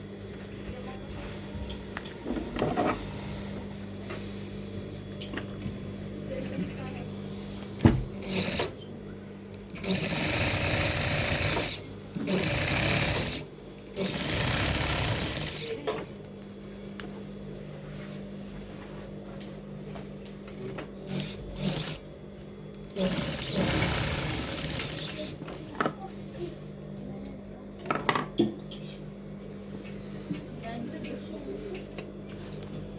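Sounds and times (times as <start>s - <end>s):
sewing machine stitching: 8.1s - 8.8s, 9.7s - 15.8s, 22.9s - 25.4s.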